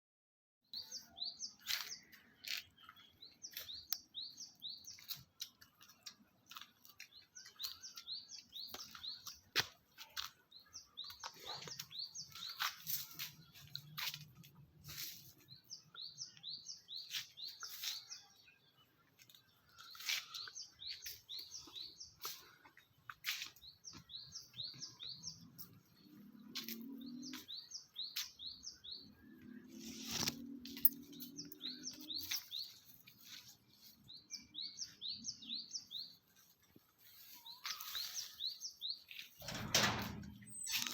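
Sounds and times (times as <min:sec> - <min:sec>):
small birds chirping: 0:00.8 - 0:40.9.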